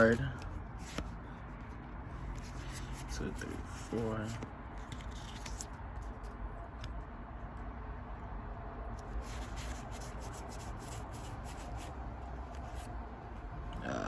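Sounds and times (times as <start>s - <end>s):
cards rubbing and ticking: 0.0s - 7.2s, 9.0s - 13.0s
steady low hum: 0.0s - 14.0s.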